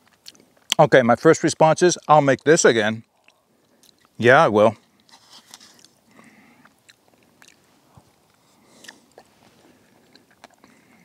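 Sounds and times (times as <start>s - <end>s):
close-up chewing: 0.0s - 0.8s, 1.9s - 4.2s, 4.8s - 11.0s
soft mouth clicks: 6.6s - 7.6s, 9.9s - 11.0s.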